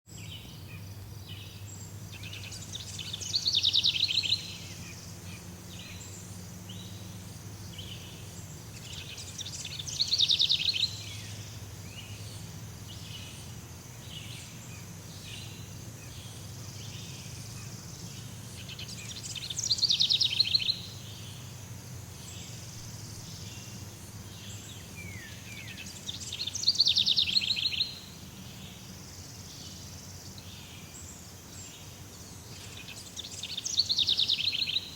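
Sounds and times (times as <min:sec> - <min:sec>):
steady low hum: 0:00.1 - 0:27.3
insects and birds chattering: 0:00.1 - 0:34.9.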